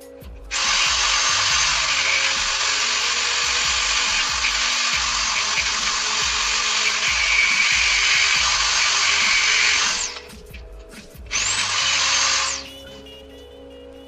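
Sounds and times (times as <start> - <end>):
background music: 0.0 - 14.0
rotary tool grinding metal: 0.5 - 10.4, 11.2 - 12.7.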